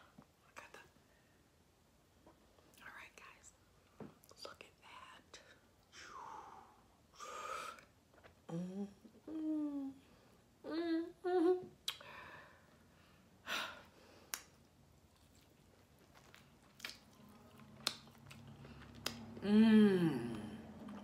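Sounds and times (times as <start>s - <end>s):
person humming: 8.5s - 11.8s, 19.4s - 20.8s
wet mouth clicks and lip smacks: 11.8s - 12.0s, 14.3s - 19.4s.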